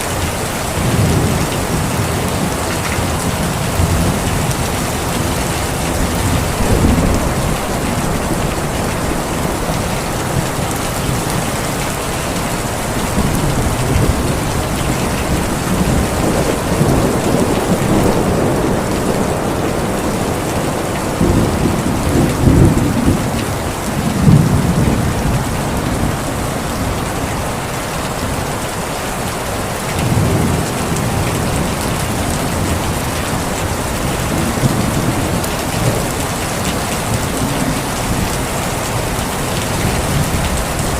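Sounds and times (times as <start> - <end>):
heavy rain falling: 0.0 - 40.9
thunder rolling: 0.8 - 27.1.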